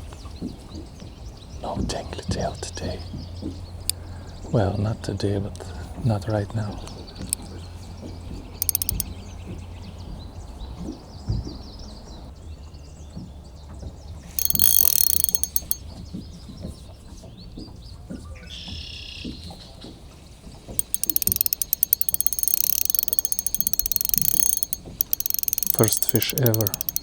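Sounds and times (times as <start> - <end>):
fishing reel drag clicking: 8.6 - 9.1, 14.4 - 15.8, 20.8 - 27.0
birds chirping faintly: 14.4 - 15.8, 20.8 - 27.0.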